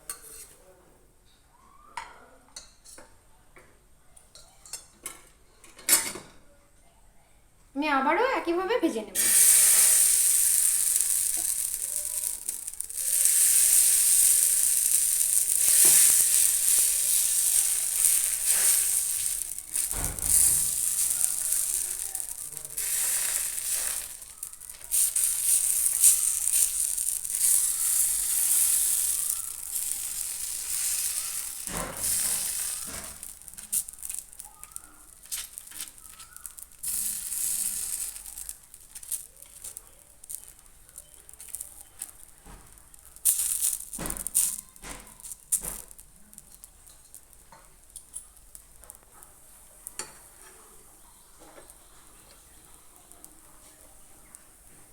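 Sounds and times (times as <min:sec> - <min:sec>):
batter sizzling in oil: 0:07.8 - 0:54.9.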